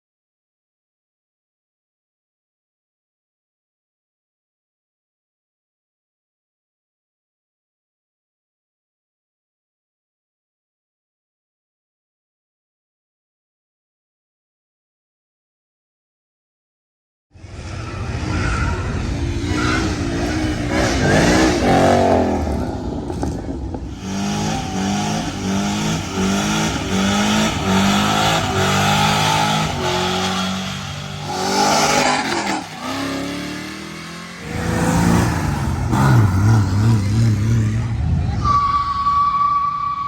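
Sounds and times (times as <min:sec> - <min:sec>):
car engine revving: 0:17.4 - 0:38.6.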